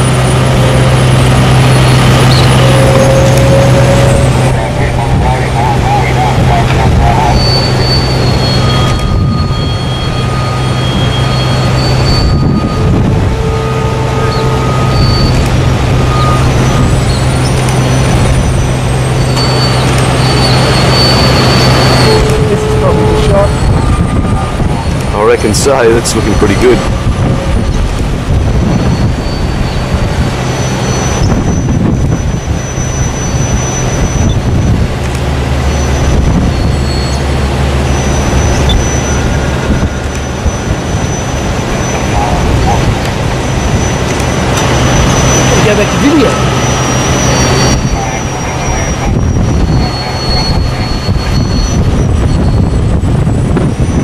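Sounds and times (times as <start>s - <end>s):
heavy diesel engines droning: 0.0s - 54.0s
short high tones: 6.0s - 27.8s, 44.8s - 52.7s.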